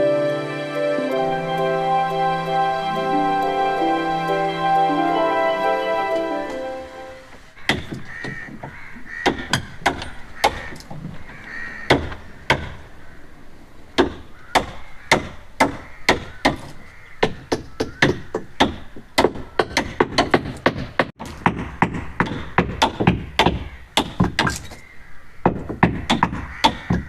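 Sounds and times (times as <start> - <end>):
hand tools knocking on timber: 7.7 - 10.6, 25.5 - 27.0.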